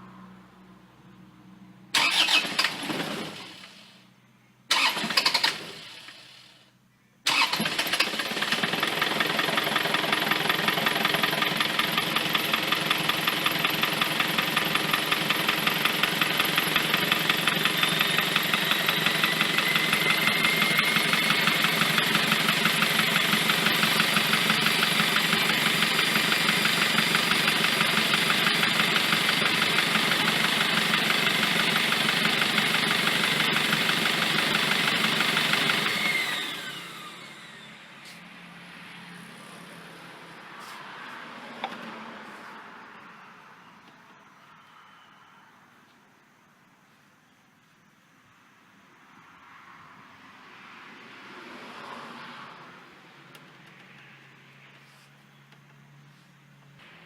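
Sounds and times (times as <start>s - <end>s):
diesel engine starting and idling: 1.8s - 40.8s.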